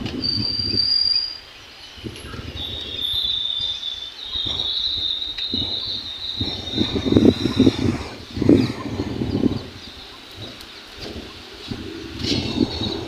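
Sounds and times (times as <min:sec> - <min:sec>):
high clear whistle: 0:00.1 - 0:01.5, 0:02.2 - 0:07.9
low rumble: 0:04.5 - 0:13.0.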